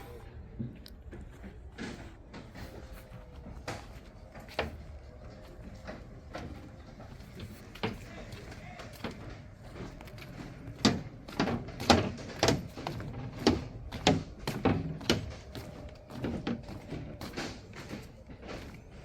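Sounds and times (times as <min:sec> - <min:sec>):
sharp knocks and thumps: 0:07.2 - 0:19.0.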